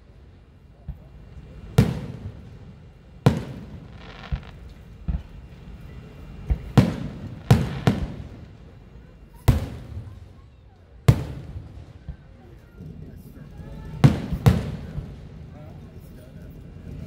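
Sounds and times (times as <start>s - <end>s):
firework shells booming: 3.3s - 5.5s, 6.4s - 8.9s.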